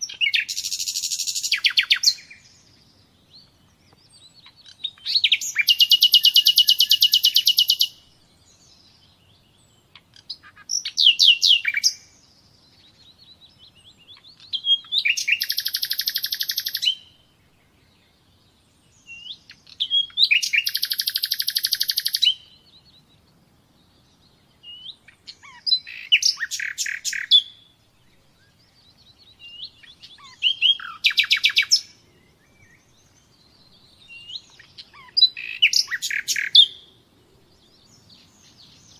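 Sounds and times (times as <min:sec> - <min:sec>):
songbird singing trills: 0:00.0 - 0:38.9.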